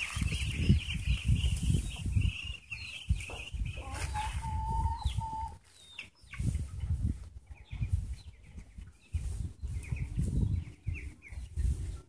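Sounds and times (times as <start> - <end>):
low microphone rumble: 6.4 - 12.0.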